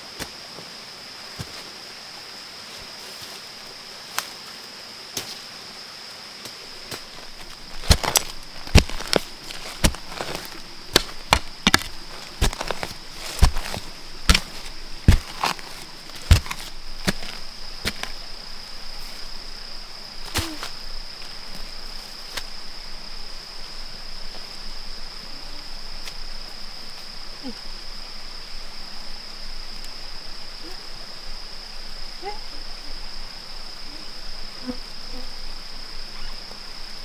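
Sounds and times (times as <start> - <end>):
high insect buzz: 0.0 - 23.7.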